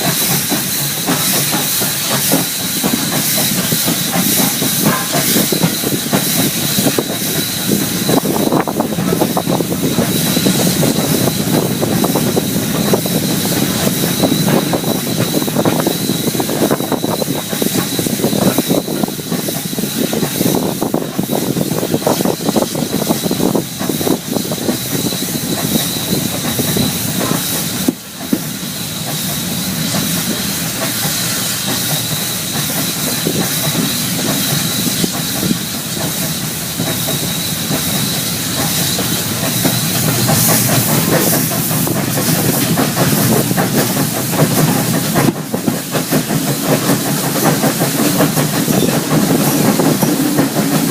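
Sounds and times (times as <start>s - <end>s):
hissing steam: 0.0s - 50.9s
train wheels clickety-clack: 0.0s - 50.9s
steady high whine: 33.8s - 50.9s.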